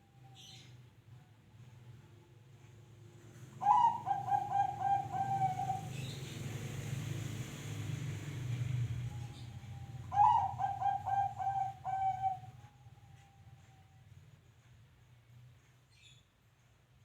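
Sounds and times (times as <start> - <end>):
dove cooing: 3.6 - 6.2, 9.9 - 12.6.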